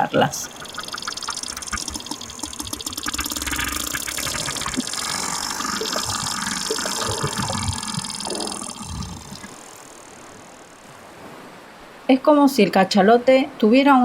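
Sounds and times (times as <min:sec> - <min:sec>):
whale clicking underwater: 0:00.0 - 0:11.0
sea noise: 0:00.0 - 0:12.4.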